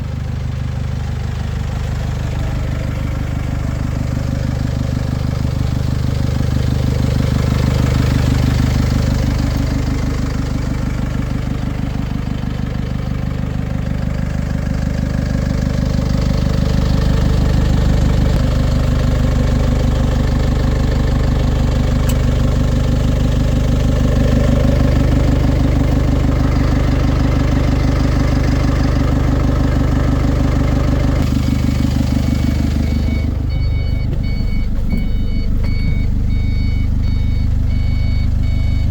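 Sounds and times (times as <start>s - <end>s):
truck diesel engine idling: 0.0s - 38.9s
reversing alarm beeping: 32.0s - 38.9s.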